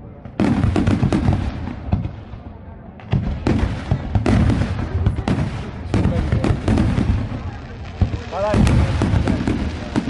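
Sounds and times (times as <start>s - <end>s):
fireworks cracking and banging: 0.2s - 10.0s.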